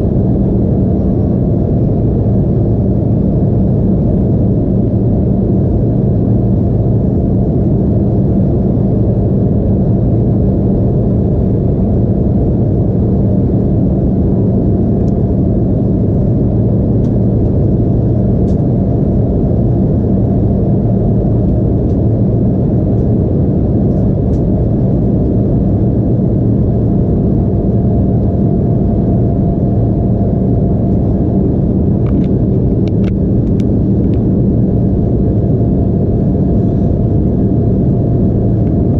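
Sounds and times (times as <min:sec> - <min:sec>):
airliner cabin engine roar: 0:00.0 - 0:38.9.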